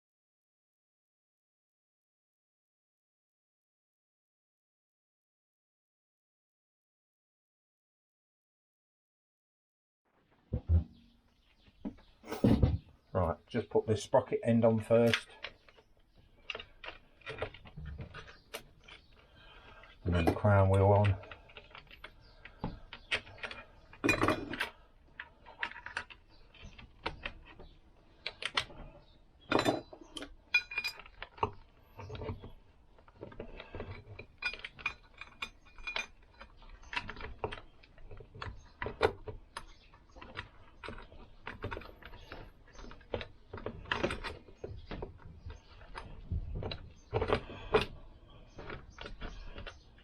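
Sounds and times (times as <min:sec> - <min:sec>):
metallic clinks and rattles: 0:23.1 - 0:24.8, 0:29.5 - 0:31.5, 0:33.8 - 0:38.2.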